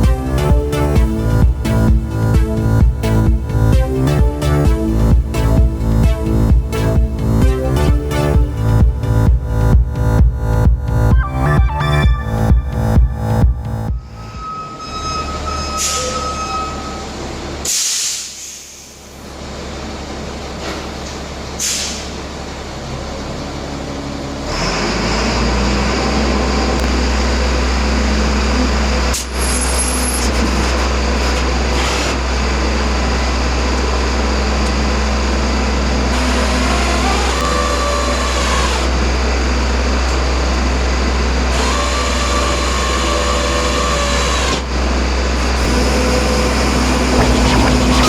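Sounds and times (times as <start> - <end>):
compressed air hisses: 17.7 - 19.0.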